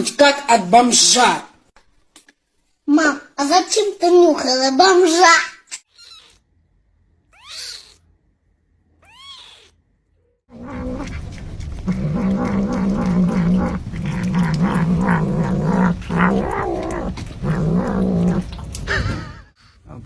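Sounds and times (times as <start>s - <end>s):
cat meowing: 5.9s - 6.4s, 7.3s - 8.0s, 9.0s - 9.8s, 10.5s - 19.4s
cat yowling: 7.3s - 8.0s, 9.0s - 9.7s, 10.5s - 19.4s.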